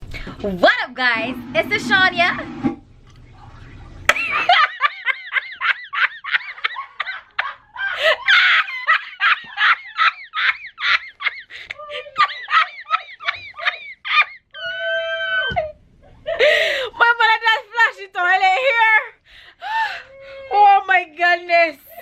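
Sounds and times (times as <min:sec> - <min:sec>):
woman giggling: 0:04.2 - 0:16.9
woman squealing: 0:10.4 - 0:15.8, 0:19.6 - 0:20.8.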